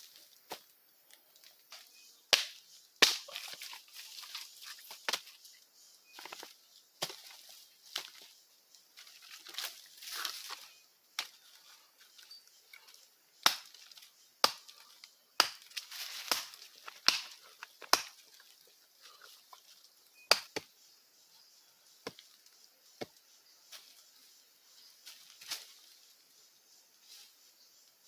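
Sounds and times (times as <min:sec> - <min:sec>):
wood cracking and knocking: 0:15.4 - 0:18.2, 0:20.3 - 0:20.6.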